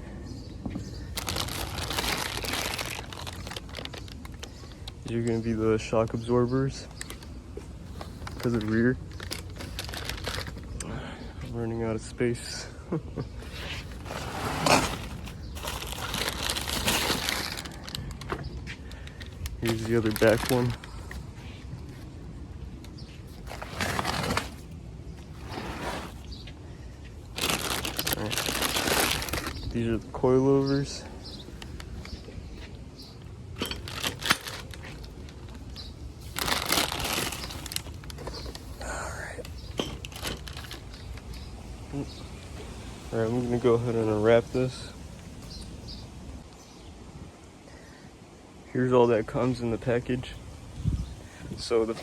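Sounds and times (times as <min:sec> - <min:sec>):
packaging crunch: 0:01.0 - 0:05.0, 0:07.9 - 0:10.8, 0:13.5 - 0:21.3, 0:23.4 - 0:26.3, 0:27.3 - 0:29.8, 0:33.6 - 0:42.0
packaging crinkling and rustling: 0:01.0 - 0:05.3, 0:06.8 - 0:10.8, 0:13.4 - 0:22.1, 0:22.9 - 0:26.5, 0:27.2 - 0:29.8, 0:33.6 - 0:43.1.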